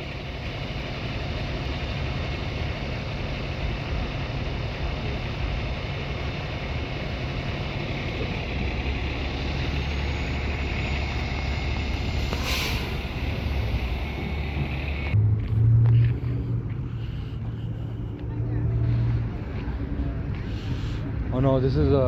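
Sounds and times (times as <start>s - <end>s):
loud low hum: 0.0s - 21.9s
street traffic rumble: 0.0s - 22.0s
brief hiss: 12.2s - 13.2s.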